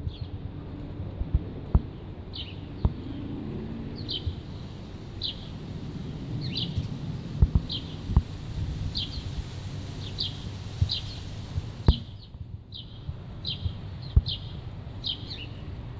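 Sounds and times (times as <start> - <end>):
low outdoor background: 0.0 - 15.9
small bird chirping: 8.9 - 15.7
sharp low thumps: 11.6 - 14.4.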